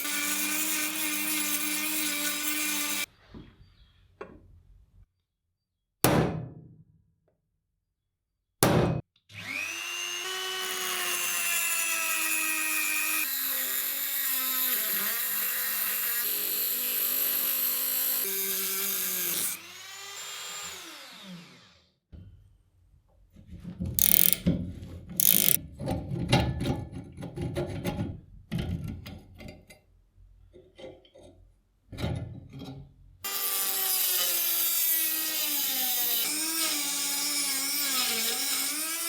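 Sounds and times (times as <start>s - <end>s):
electric power tool whining: 9.3s - 21.8s, 24.0s - 24.4s, 25.2s - 25.6s.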